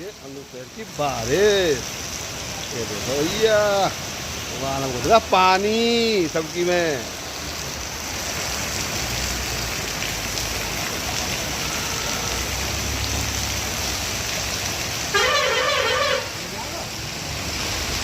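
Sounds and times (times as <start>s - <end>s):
heavy rain rushing: 0.0s - 18.0s.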